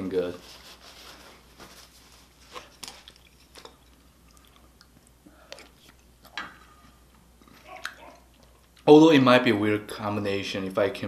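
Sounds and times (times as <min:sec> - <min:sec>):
person chewing food: 0:02.4 - 0:08.8.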